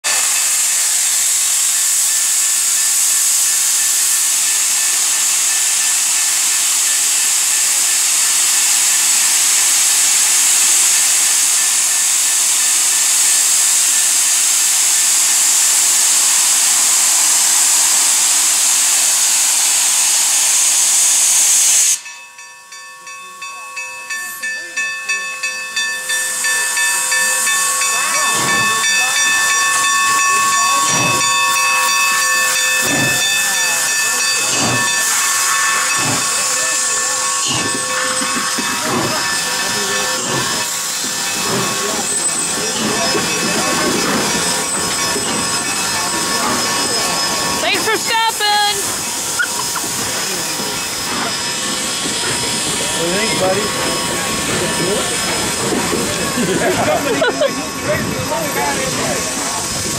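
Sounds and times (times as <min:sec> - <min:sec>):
steam locomotive hissing: 0:00.0 - 0:59.9
bell ringing: 0:22.0 - 0:59.6.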